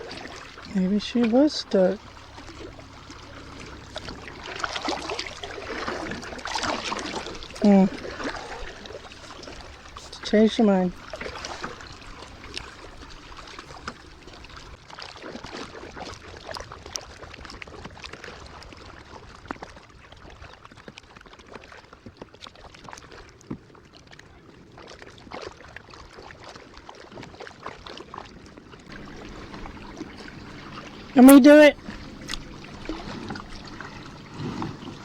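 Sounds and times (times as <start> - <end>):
small drips and splashes: 0.0 - 15.6, 28.9 - 35.0
water lapping around kayak: 0.0 - 35.0.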